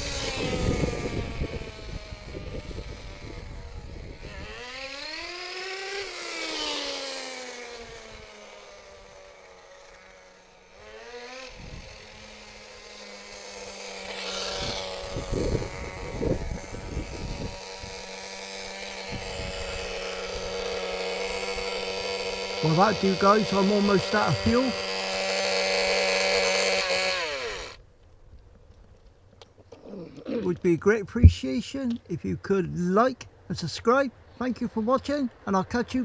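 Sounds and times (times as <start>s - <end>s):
glow engine revving: 0.0s - 27.8s
high-pitched engine drone: 0.0s - 27.8s.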